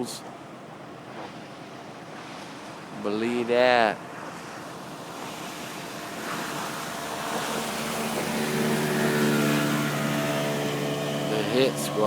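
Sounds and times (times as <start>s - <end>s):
steady rushing noise: 4.1s - 12.0s.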